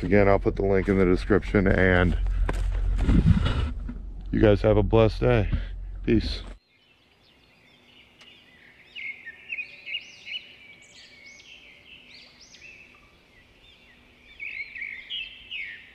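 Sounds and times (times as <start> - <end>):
songbirds singing: 5.3 - 15.9.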